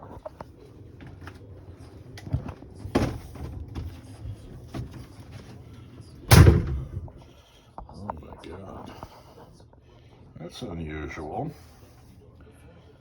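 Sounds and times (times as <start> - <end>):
door knocks: 6.3 - 7.1
heavy door thump: 6.3 - 7.2.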